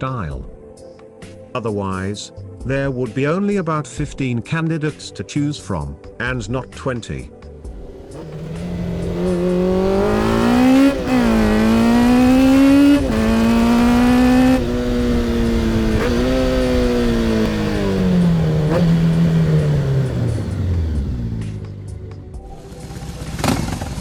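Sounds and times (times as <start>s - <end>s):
motorcycle engine accelerating: 7.7s - 24.0s.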